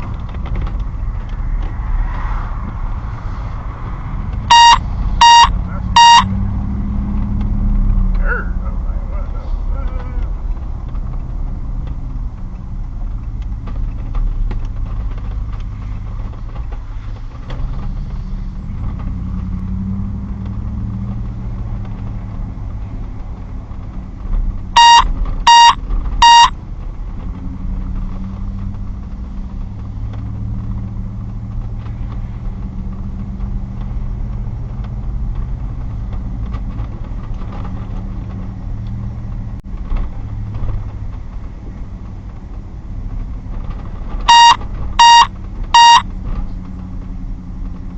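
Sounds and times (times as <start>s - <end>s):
vehicle engine running: 0.0s - 47.9s
short electronic beeps: 4.5s - 6.4s, 24.8s - 26.6s, 44.3s - 46.0s.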